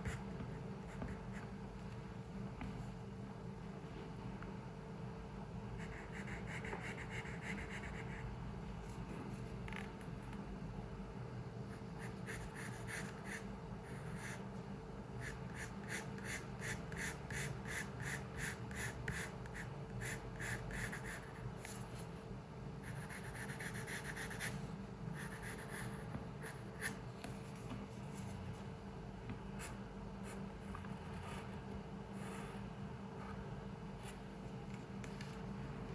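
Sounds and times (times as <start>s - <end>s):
steady low hum: 0.0s - 35.9s
pencil scratching on paper: 5.8s - 8.2s, 22.8s - 24.6s, 25.2s - 28.3s.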